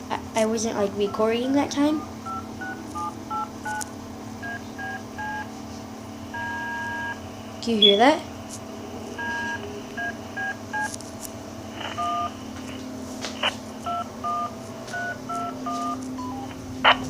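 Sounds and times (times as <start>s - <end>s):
steady hum: 0.0s - 17.0s
touch-tone dialing beeps: 2.0s - 3.8s, 4.4s - 5.5s, 6.3s - 7.2s, 9.2s - 10.9s, 11.9s - 12.3s, 13.8s - 16.6s.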